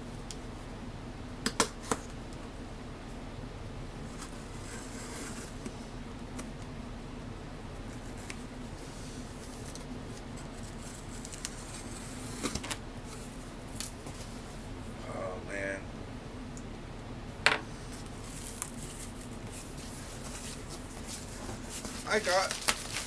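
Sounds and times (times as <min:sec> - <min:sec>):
steady low hum: 0:00.0 - 0:23.0
clicks and rustles: 0:09.4 - 0:14.3, 0:17.9 - 0:23.0.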